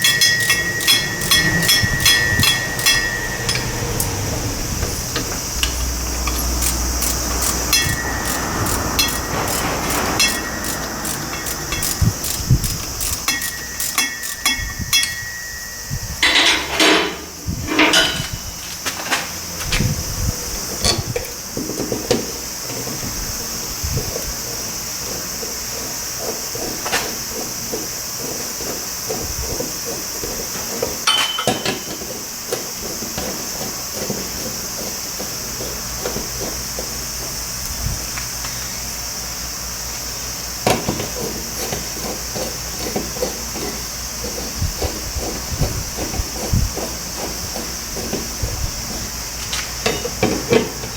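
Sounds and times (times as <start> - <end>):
metal tools clinking on car parts: 0.0 - 18.6, 31.0 - 32.1.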